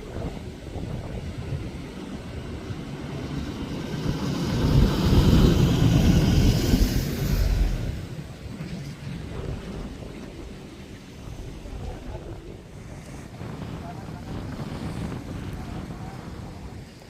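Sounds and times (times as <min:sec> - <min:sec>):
motor vehicle passing: 0:02.5 - 0:08.3.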